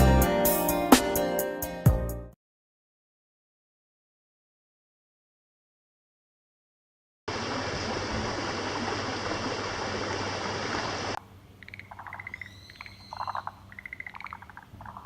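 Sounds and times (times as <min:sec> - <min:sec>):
frogs calling in pulsed trills: 0:11.6 - 0:15.0.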